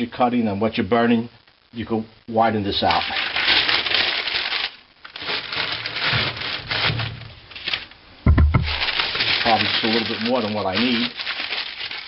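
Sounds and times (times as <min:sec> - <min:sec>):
newspaper rustling and crinkling: 0:02.8 - 0:08.0, 0:08.6 - 0:12.0
dull knock: 0:08.3 - 0:08.8.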